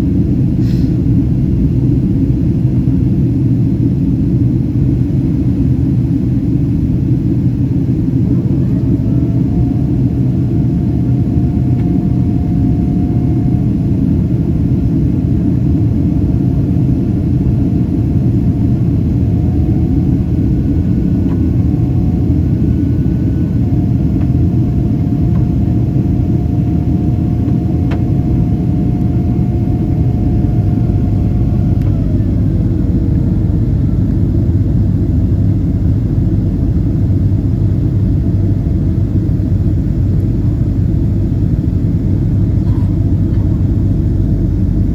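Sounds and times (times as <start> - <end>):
aircraft cabin engine roar: 0.0 - 44.9
thin whine: 15.5 - 34.1.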